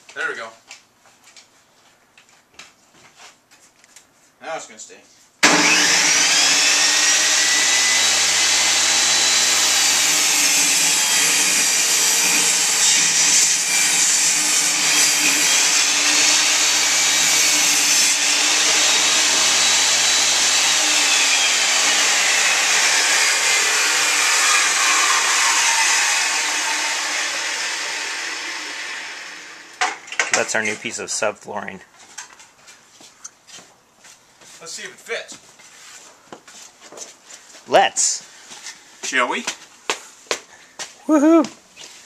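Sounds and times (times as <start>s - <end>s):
saw blade spinning down: 5.4s - 30.7s
power saw cutting wood: 5.4s - 31.0s.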